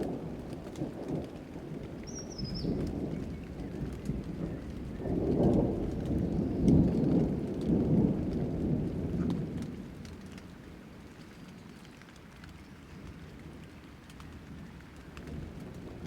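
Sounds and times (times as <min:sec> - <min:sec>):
thunder rolling: 0:00.0 - 0:10.2
steady rain: 0:00.0 - 0:16.0.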